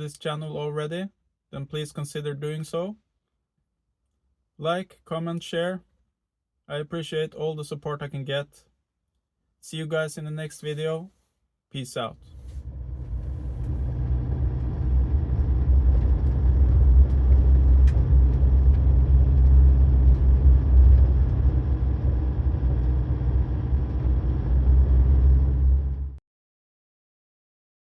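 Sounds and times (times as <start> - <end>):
vehicle engine and road rumble: 12.2 - 26.2.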